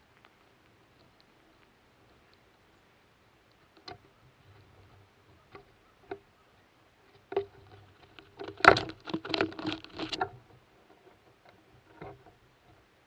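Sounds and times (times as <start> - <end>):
animal tapping and scrabbling at feeder: 7.2 - 12.4.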